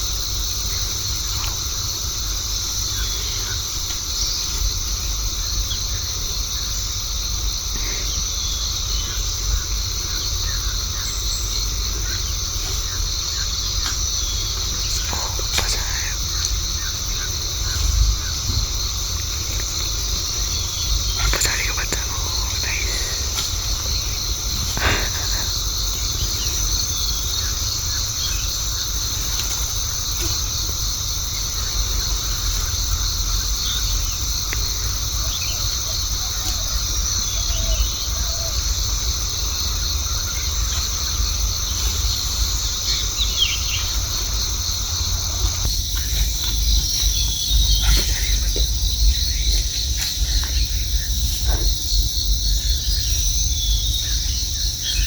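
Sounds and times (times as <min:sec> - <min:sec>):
forest insects chorus: 0:00.0 - 0:55.0
faint bird chirps: 0:07.7 - 0:29.4
low microphone rumble: 0:08.6 - 0:34.5.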